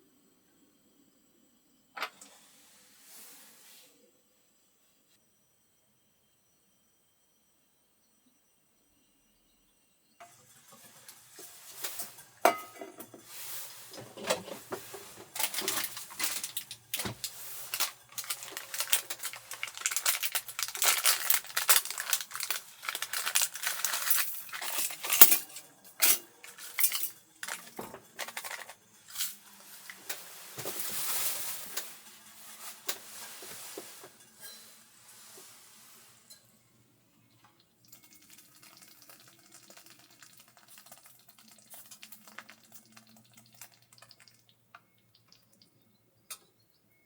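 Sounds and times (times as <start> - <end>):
dishes and utensils clinking: 10.2 - 35.5.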